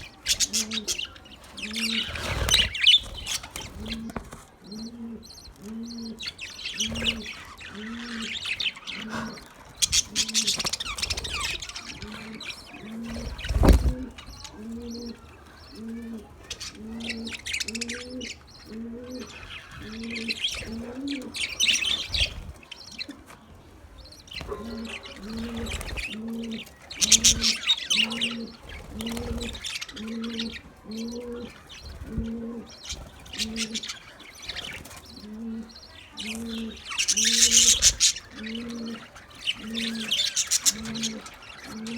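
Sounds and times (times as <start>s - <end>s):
budgies chirping and warbling: 0.0s - 41.9s.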